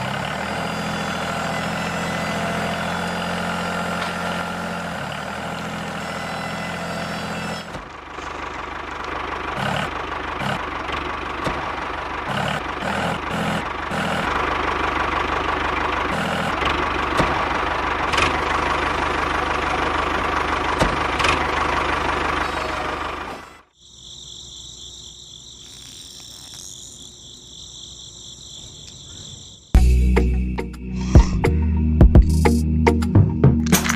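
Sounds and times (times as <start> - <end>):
motor running: 0.0 - 23.6.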